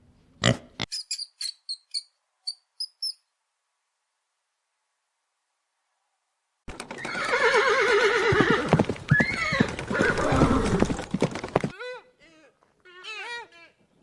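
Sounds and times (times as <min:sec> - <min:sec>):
horse whinnying: 0:06.9 - 0:11.0.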